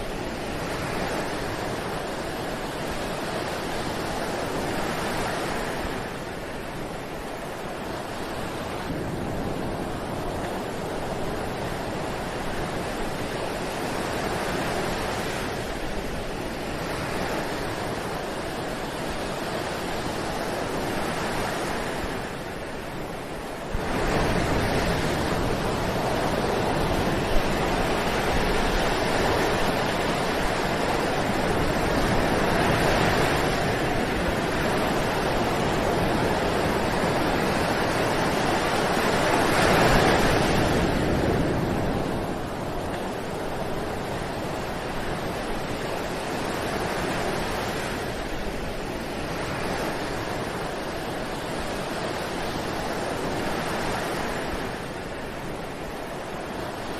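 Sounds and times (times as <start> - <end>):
ocean waves breaking on beach: 0.0 - 56.9.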